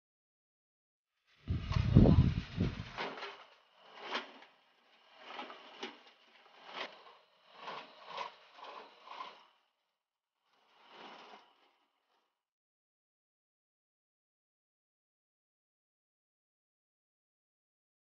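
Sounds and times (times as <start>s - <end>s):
cartridge belt rattling on metal can: 1.6s - 9.4s.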